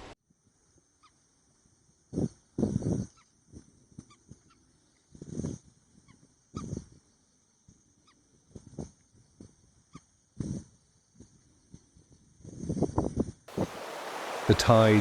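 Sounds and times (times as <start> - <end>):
goose-like honks: 13.5 - 15.0
low bird calls: 13.5 - 15.0.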